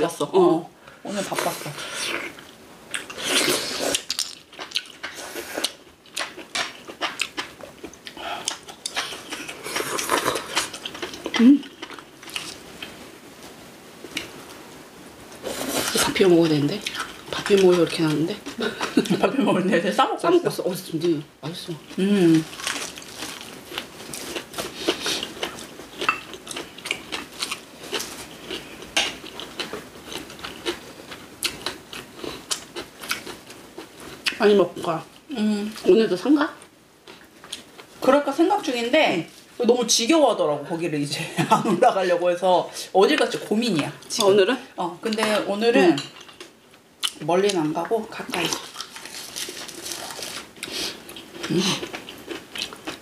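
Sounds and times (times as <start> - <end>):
people chewing and smacking: 2.0 - 13.0, 21.8 - 34.4, 47.8 - 53.0.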